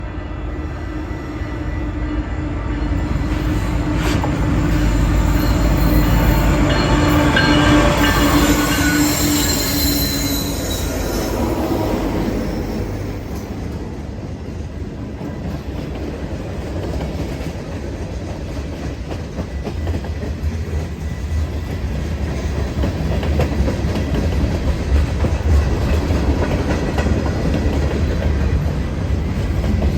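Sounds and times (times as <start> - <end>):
wheels squealing on rails: 0.4 - 14.1
locomotive engines: 2.8 - 16.2.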